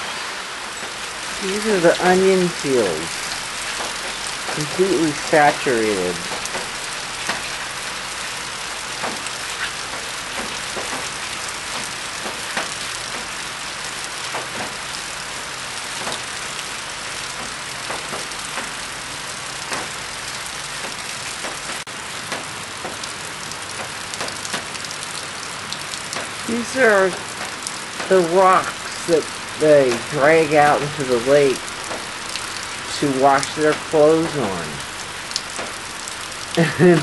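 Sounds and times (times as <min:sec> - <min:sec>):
raindrops ticking close by: 0:00.0 - 0:37.0
steady rain hiss: 0:00.0 - 0:37.0.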